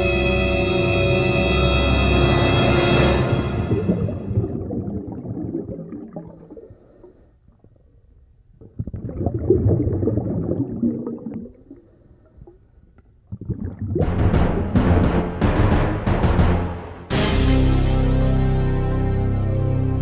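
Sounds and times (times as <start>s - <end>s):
low rumbling gurgling: 3.2s - 15.0s
loud burst of music: 14.0s - 20.0s.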